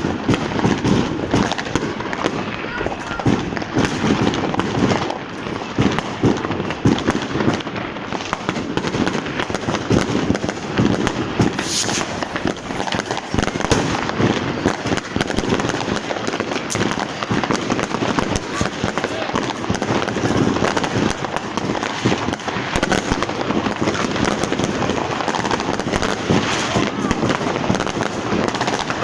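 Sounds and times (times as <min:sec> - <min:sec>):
firework hissing burst: 0:11.5 - 0:13.9
firecracker cracks and bangs: 0:11.6 - 0:29.0.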